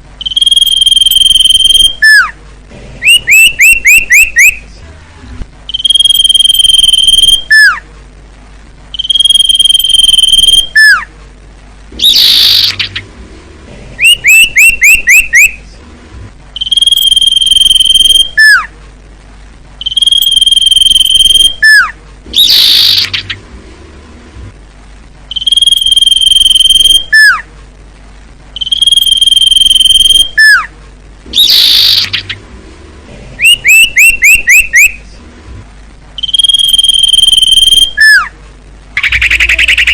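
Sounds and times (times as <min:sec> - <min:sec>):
short upswept chirps: 0:00.2 - 0:02.3, 0:05.7 - 0:07.8, 0:08.9 - 0:11.1, 0:16.6 - 0:18.7, 0:19.8 - 0:23.4, 0:25.3 - 0:27.4, 0:28.6 - 0:30.7, 0:36.2 - 0:38.3
high bird whistles: 0:00.2 - 0:02.4, 0:03.0 - 0:04.6, 0:05.7 - 0:07.8, 0:09.0 - 0:11.1, 0:12.0 - 0:13.0, 0:14.0 - 0:15.6, 0:16.6 - 0:18.7, 0:19.8 - 0:23.4, 0:25.3 - 0:27.5, 0:28.6 - 0:30.7, 0:31.3 - 0:32.4, 0:33.4 - 0:35.0, 0:36.2 - 0:38.3, 0:39.0 - 0:39.9
harsh rasping bird call: 0:30.1 - 0:30.7.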